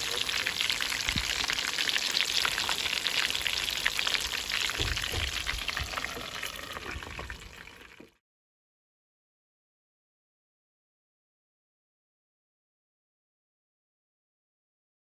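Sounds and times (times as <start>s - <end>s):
chicken deep-frying in oil: 0.0s - 8.2s
low knocks: 4.7s - 5.6s.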